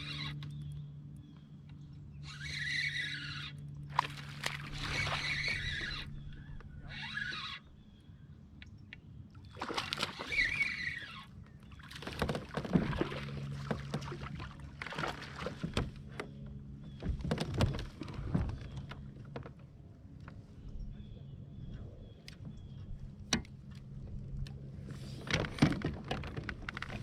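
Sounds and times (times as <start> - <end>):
paddle splashing in water: 3.9 - 6.1, 9.4 - 16.2
light knocks against hull: 11.8 - 20.4.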